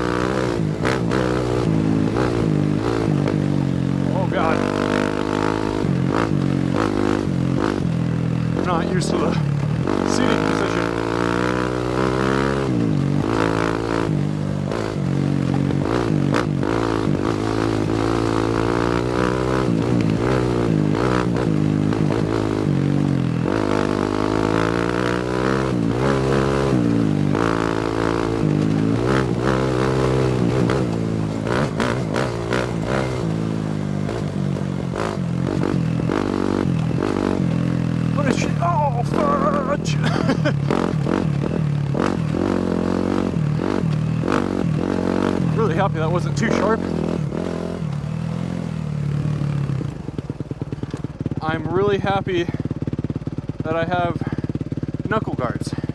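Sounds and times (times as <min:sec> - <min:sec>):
dirt bike engine revving: 0:00.0 - 0:55.9
bike knocks and rattles: 0:14.2 - 0:24.1, 0:24.9 - 0:42.5, 0:50.1 - 0:51.4.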